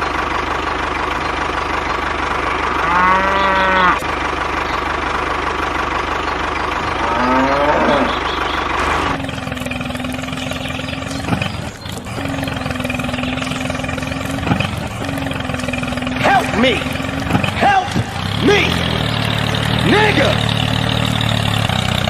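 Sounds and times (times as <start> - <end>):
engine running: 0.0 - 22.0
honking calls: 1.0 - 22.0
droning hum: 1.2 - 21.8.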